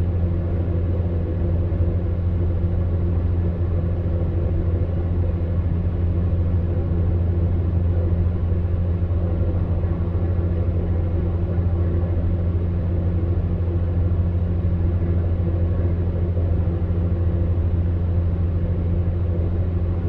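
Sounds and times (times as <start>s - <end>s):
fan heater humming: 0.0s - 20.0s.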